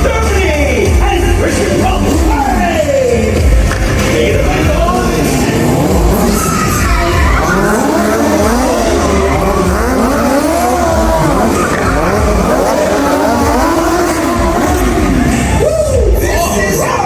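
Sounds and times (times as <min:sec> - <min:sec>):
vehicle engines revving: 0:00.0 - 0:17.0
tyres squealing and skidding: 0:01.1 - 0:17.0.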